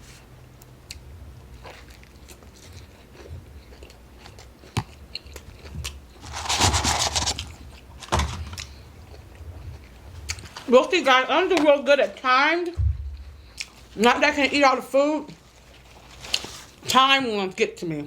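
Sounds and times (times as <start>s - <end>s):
person biting and chewing food: 0.6s - 10.7s, 13.1s - 13.9s
food crackling: 0.6s - 17.0s.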